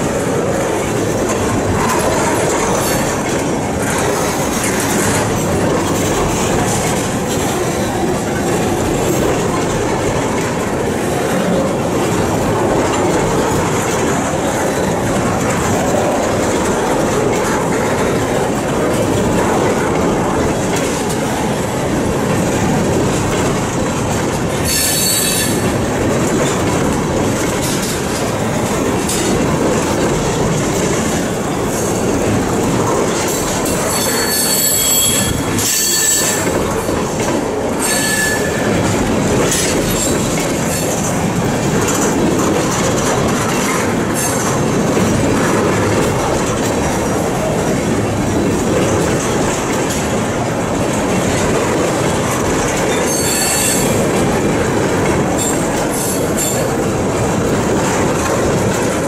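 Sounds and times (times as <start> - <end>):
steel train wheels on rail: 0.0 - 59.0
high-pitched metallic squeals: 24.7 - 25.6, 33.9 - 36.5, 37.8 - 38.7, 53.1 - 53.9.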